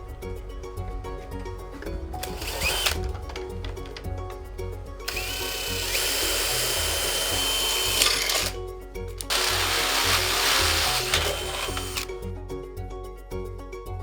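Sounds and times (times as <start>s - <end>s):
power drill running: 0.0s - 8.6s, 9.2s - 12.3s
background music with steady beat: 0.0s - 14.0s.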